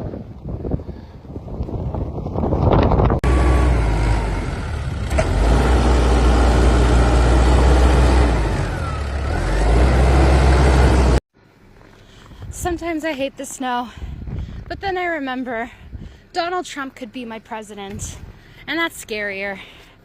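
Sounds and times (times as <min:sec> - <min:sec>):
gusty wind on microphone: 0:00.0 - 0:05.0, 0:13.9 - 0:15.1, 0:15.8 - 0:16.2
motor vehicle rumbling: 0:00.0 - 0:16.3.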